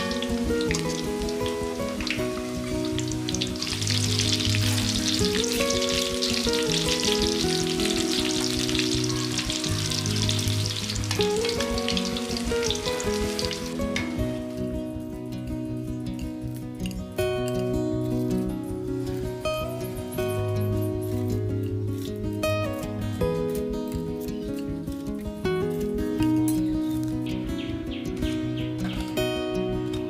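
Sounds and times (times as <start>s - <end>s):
meatballs sizzling in hot oil: 0.0s - 14.2s
soft background music: 0.0s - 30.0s.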